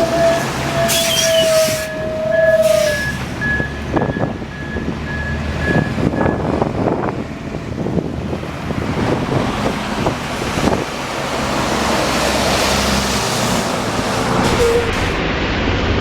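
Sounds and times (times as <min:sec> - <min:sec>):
rushing noise: 0:00.0 - 0:07.4, 0:08.3 - 0:16.0
heavy machinery running: 0:08.3 - 0:16.0.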